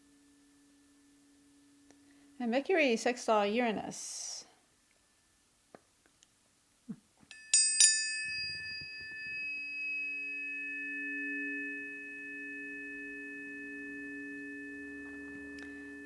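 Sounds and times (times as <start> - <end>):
tuning forks struck: 0.0 - 2.4, 7.3 - 16.0
low ringing tones: 0.0 - 2.6, 7.3 - 16.0.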